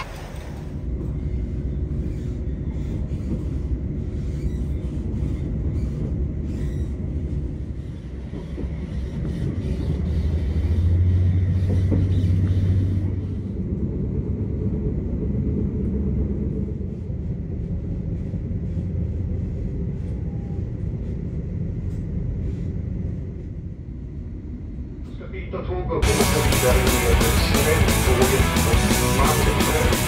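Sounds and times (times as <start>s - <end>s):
moving vehicle rumble from inside: 0.0s - 25.2s
deep drone: 9.7s - 30.0s.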